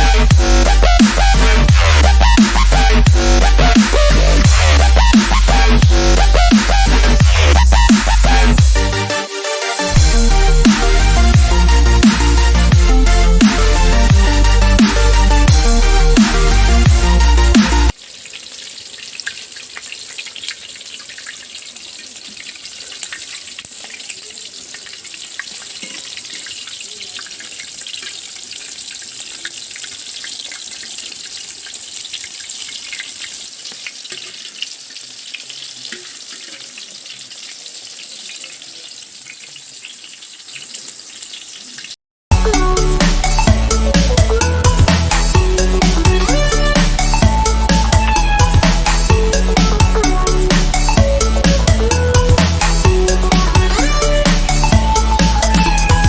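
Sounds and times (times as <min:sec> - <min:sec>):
music: 0:00.0 - 0:18.0, 0:42.3 - 0:56.0
chicken deep-frying in oil: 0:17.9 - 0:42.0.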